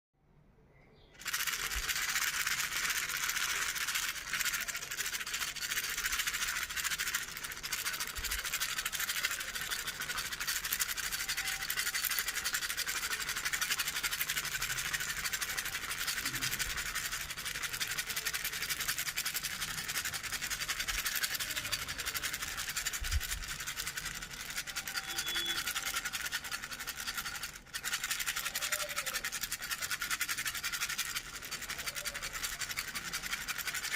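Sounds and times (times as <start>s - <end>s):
toy rattle shaken: 1.2s - 33.9s.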